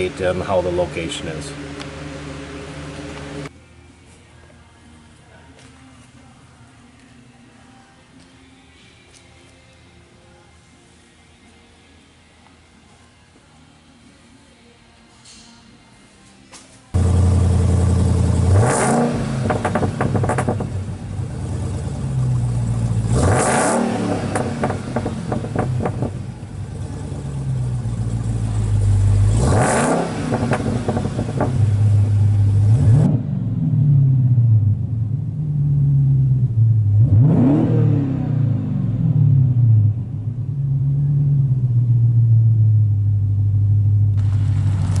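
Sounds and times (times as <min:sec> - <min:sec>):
car engine idling and revving: 0:00.0 - 0:03.5, 0:17.0 - 0:45.0.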